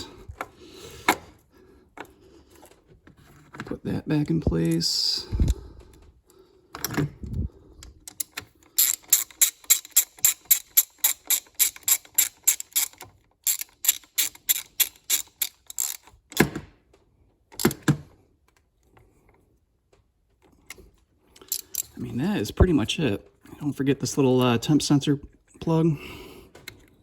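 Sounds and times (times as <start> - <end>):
socket ratchet clicking: 7.9 - 16.5, 21.4 - 22.0.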